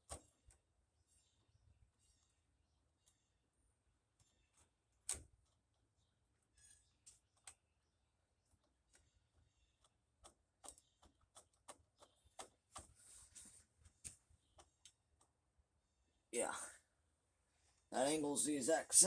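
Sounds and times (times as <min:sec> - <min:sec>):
faint metal clicks and taps: 0:08.6 - 0:15.4.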